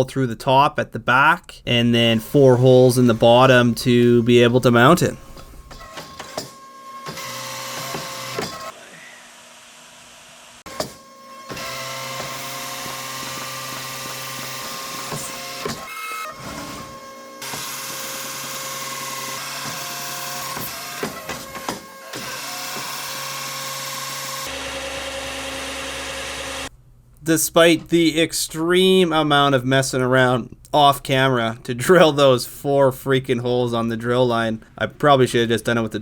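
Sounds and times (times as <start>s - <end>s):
drill boring into steel: 5.6s - 26.7s.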